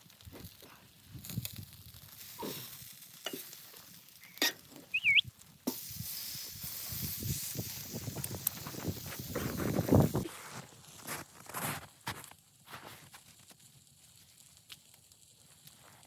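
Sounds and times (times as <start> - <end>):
sizzling hiss: 0.0 - 11.2
short wavering chirp: 4.9 - 5.3.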